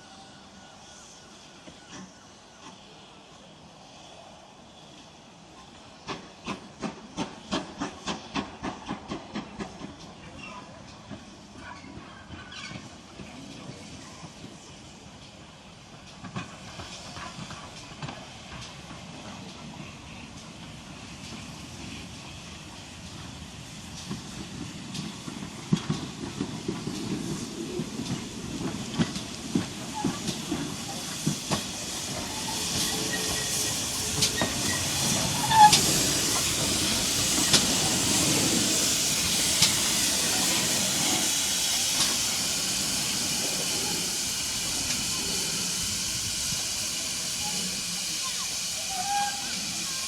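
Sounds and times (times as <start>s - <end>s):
loud hiss of escaping steam: 12.7s - 50.0s.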